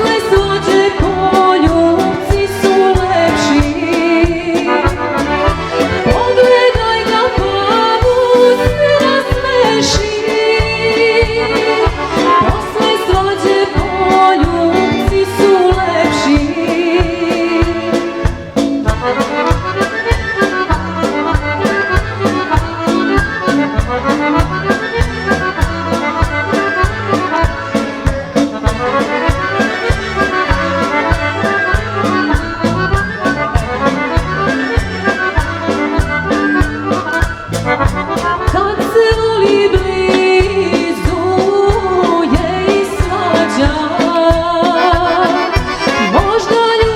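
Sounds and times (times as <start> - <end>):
woman singing: 0.0 - 18.4, 38.3 - 46.9
accordion-led folk band: 0.0 - 46.9.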